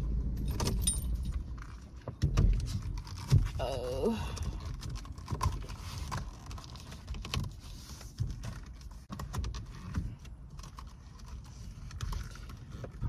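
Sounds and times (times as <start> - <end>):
hands fitting steering wheel cover: 0.4 - 13.0.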